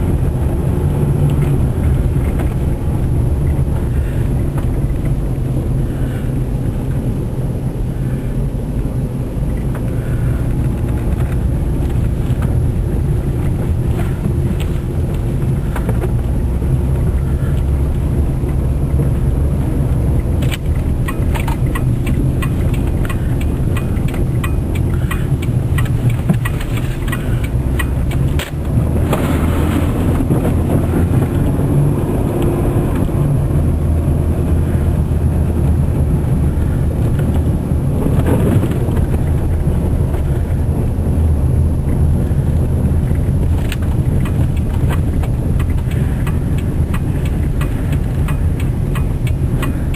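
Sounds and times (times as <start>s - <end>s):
car engine and road rumble: 0.0s - 49.9s
clicks and crackles: 20.2s - 30.6s.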